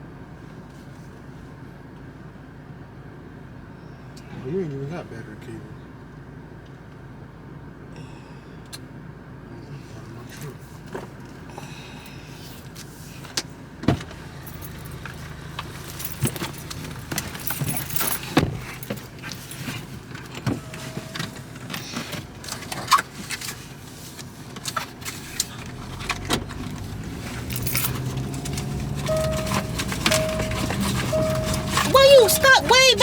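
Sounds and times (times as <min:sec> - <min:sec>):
car humming: 0:13.9 - 0:33.0.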